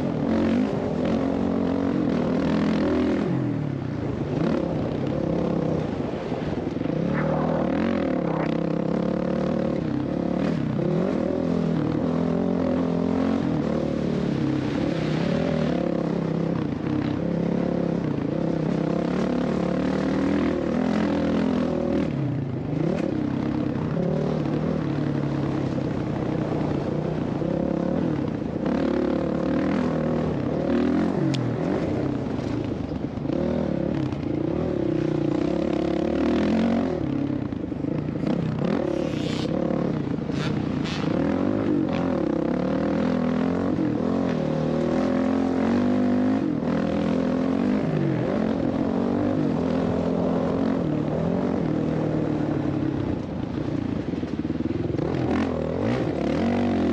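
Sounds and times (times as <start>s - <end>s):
dirt bike engine revving: 55.0s - 56.9s.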